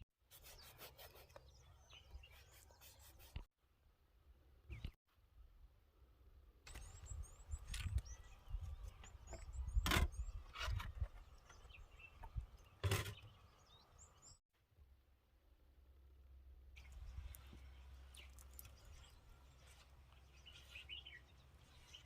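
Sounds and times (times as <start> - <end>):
small birds chirping: 0.3 - 3.5, 6.6 - 14.4, 16.8 - 22.0.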